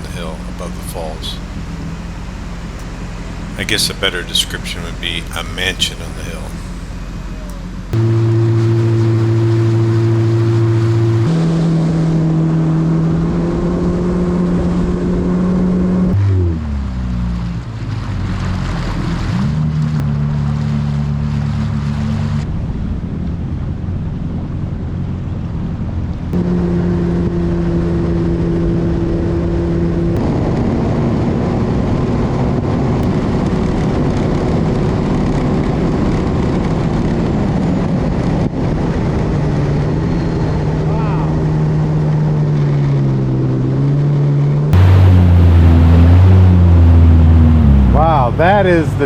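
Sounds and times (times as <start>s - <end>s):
water noise: 0.0s - 11.3s, 44.8s - 49.0s
jet ski engine: 0.0s - 49.0s.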